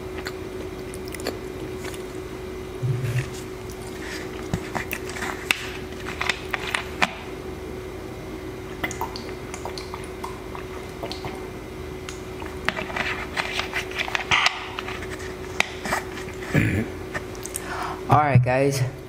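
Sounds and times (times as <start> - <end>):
wet chewing mouth sounds: 0.1 - 2.2, 2.8 - 5.2
mouth clicks and smacks: 8.8 - 11.4.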